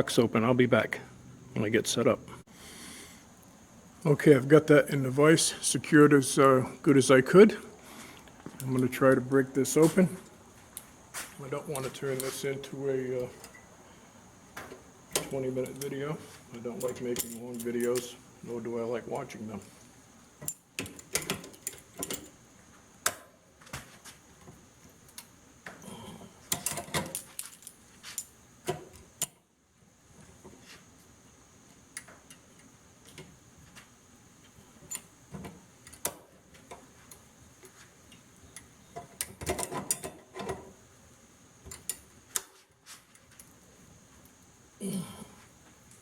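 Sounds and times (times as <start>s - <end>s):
metal tools clicking and scraping: 16.7s - 18.2s.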